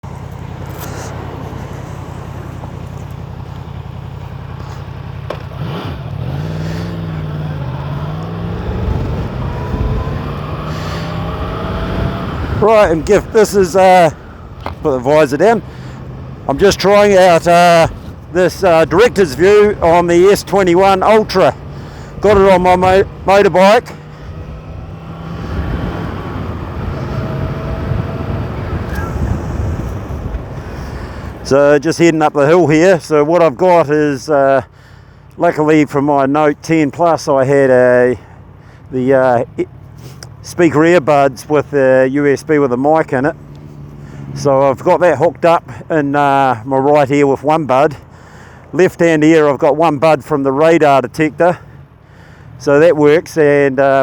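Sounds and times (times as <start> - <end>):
motorcycle engine idling: 0.0 - 9.6
motorcycle engine running: 0.0 - 31.5
wind rush: 8.4 - 13.7, 24.2 - 31.5.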